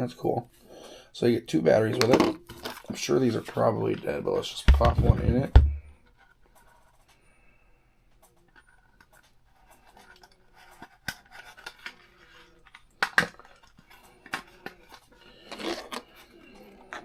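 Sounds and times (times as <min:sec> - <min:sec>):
plastic parts clicking and scraping: 0:01.9 - 0:04.1, 0:08.1 - 0:17.0.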